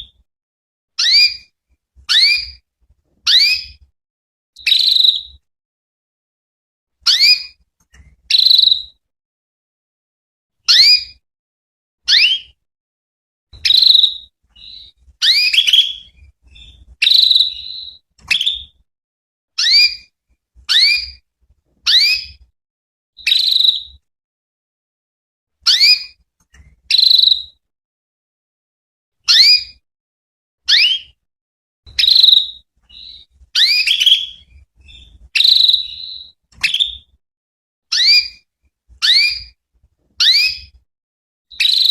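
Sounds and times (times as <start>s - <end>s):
canary chirping calls: 1.0s - 1.5s, 2.1s - 2.6s, 3.3s - 3.8s, 4.6s - 5.4s, 7.0s - 7.6s, 8.2s - 9.0s, 10.7s - 11.2s, 12.1s - 12.6s, 13.6s - 18.8s, 19.6s - 20.1s, 20.7s - 21.2s, 21.8s - 22.4s, 23.2s - 24.0s, 25.7s - 26.2s, 26.8s - 27.6s, 29.3s - 29.8s, 30.7s - 31.2s, 31.9s - 37.1s, 37.9s - 38.4s, 39.0s - 39.6s, 40.2s - 40.8s, 41.5s - 41.9s.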